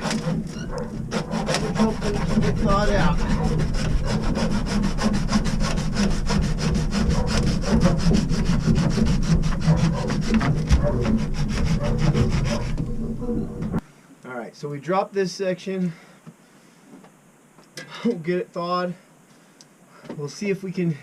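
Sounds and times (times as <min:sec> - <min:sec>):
saw cutting plastic pipe: 0:00.0 - 0:13.8.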